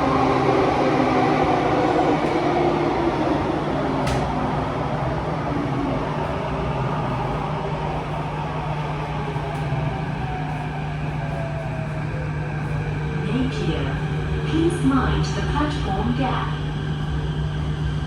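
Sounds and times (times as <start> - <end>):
metro train rumble and hum: 0.0 - 18.0.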